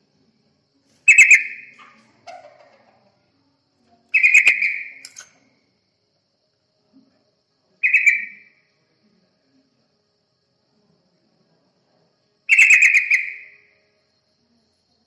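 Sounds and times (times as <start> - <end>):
bulbul call: 1.1 - 3.0, 4.1 - 5.4, 7.8 - 8.6.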